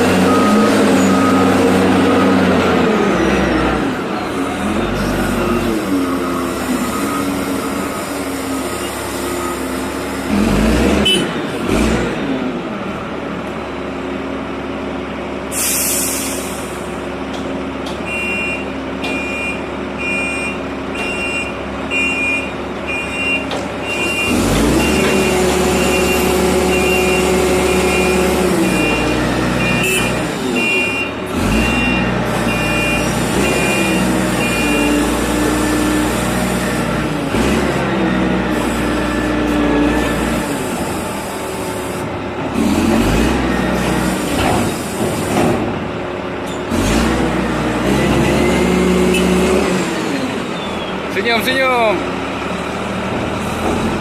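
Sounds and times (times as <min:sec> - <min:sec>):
reversing alarm beeping: 0:00.0 - 0:02.9, 0:05.2 - 0:09.7, 0:18.0 - 0:35.2
diesel engine revving: 0:00.0 - 0:54.0
air hiss: 0:15.5 - 0:16.8.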